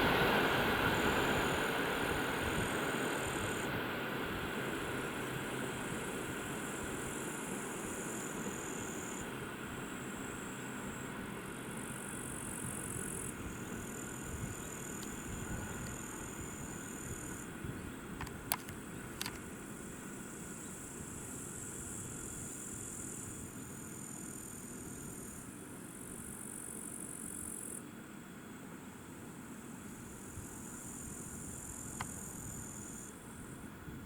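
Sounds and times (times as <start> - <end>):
train rolling along track: 0.0 - 17.6
insect chirring: 5.0 - 11.1, 11.7 - 17.5, 29.9 - 33.6.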